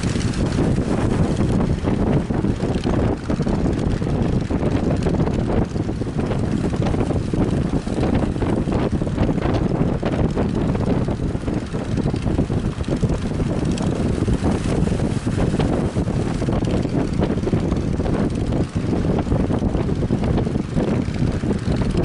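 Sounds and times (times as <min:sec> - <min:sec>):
surf rushing: 0:00.0 - 0:05.1, 0:11.0 - 0:22.0
wind buffeting microphone: 0:00.0 - 0:22.0.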